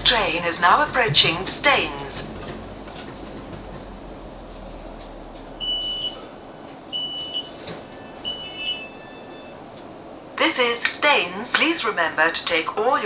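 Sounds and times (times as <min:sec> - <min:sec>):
train door warning beeps: 0:00.0 - 0:13.0
train running rumble: 0:00.0 - 0:13.0.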